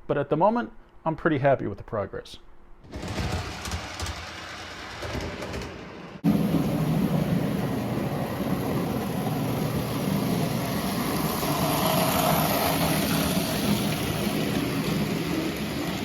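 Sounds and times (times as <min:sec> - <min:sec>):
wheels rumbling on track: 0:05.2 - 0:16.0
model train motor hum: 0:06.3 - 0:16.0.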